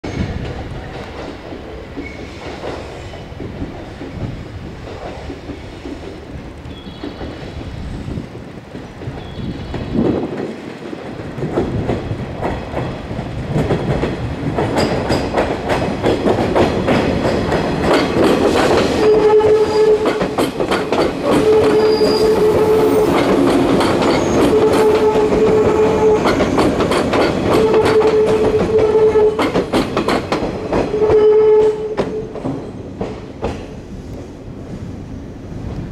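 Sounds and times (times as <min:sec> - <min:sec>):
train wheels clacking over rail joints: 0:00.1 - 0:07.6, 0:08.7 - 0:34.4.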